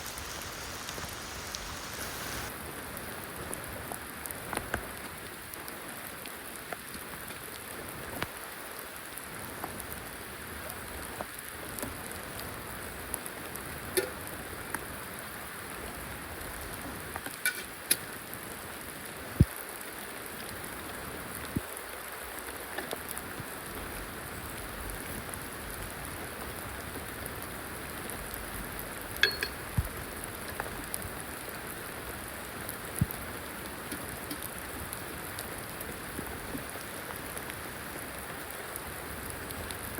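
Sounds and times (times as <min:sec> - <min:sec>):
rain falling: 0:00.0 - 0:39.9
sharp taps of raindrops: 0:04.5 - 0:05.8, 0:29.2 - 0:31.1.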